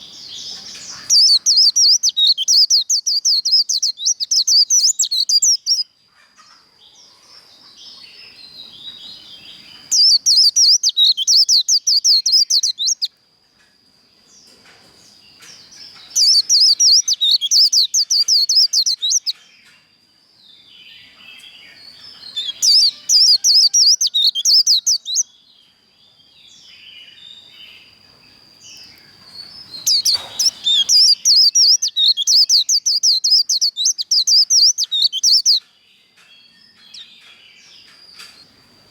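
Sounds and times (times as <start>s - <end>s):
bird chirps: 0.0s - 13.2s, 14.4s - 28.0s, 28.6s - 38.6s
white-eye trilling song: 22.2s - 25.2s.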